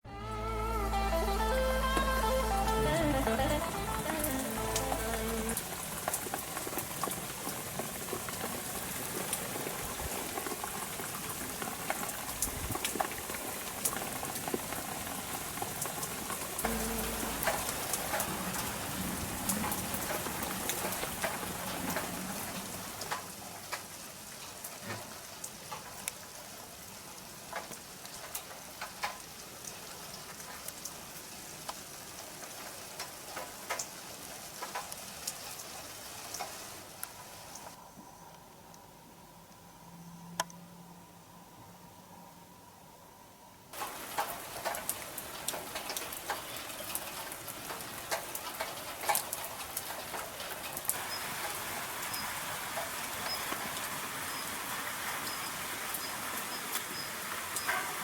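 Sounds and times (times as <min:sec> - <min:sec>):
rain falling: 0:00.0 - 0:38.7, 0:43.7 - 0:58.0
water drips ticking: 0:01.9 - 0:37.8, 0:43.7 - 0:58.0.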